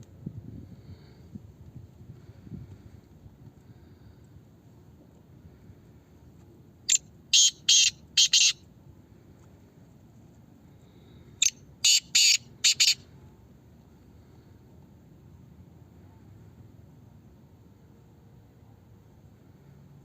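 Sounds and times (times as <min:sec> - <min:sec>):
francolin harsh grating call: 0:06.9 - 0:08.6, 0:11.4 - 0:13.0.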